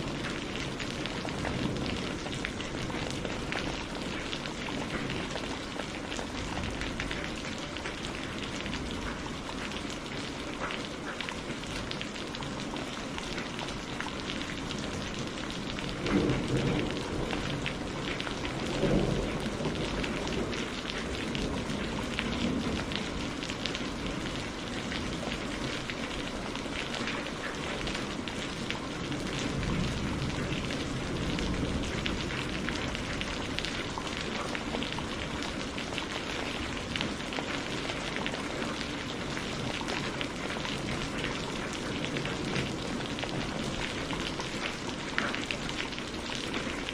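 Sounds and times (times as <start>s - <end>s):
heavy rain falling: 0.0s - 46.9s
low thunder rumbling: 15.0s - 24.2s.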